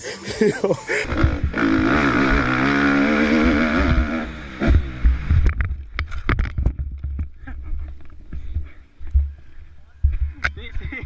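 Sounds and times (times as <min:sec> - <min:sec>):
dirt bike engine running: 0:01.0 - 0:07.6
low rumble: 0:01.0 - 0:11.0
sharp knocks and clatters: 0:04.6 - 0:08.1.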